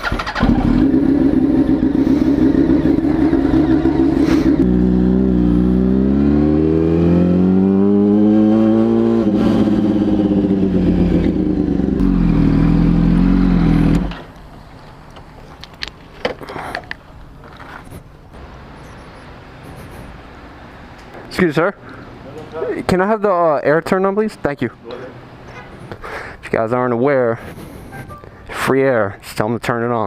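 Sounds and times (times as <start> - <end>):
motorcycle engine revving: 0.0 - 14.3.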